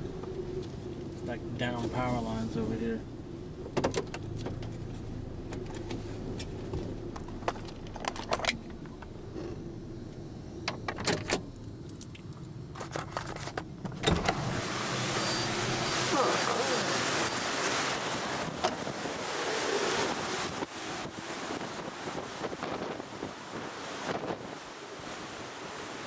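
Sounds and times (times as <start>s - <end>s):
vehicle humming: 0.0s - 26.0s
sharp clicks and rattles: 7.1s - 9.6s.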